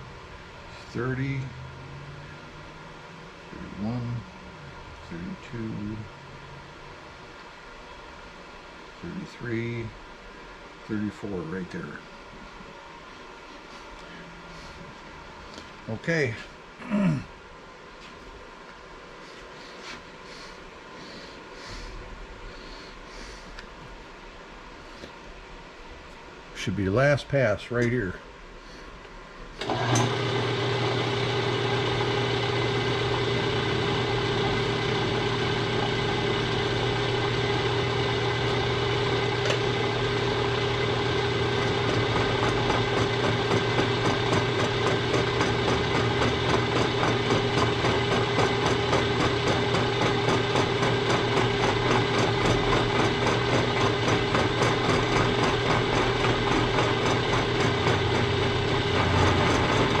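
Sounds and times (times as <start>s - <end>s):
machine tool motor and spindle hum: 29.0s - 60.0s.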